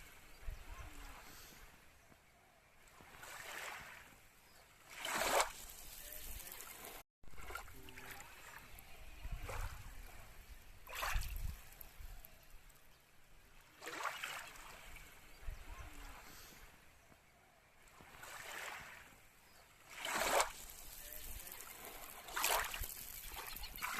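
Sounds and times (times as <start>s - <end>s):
small waves washing onto shore: 2.8s - 12.9s, 17.8s - 23.9s.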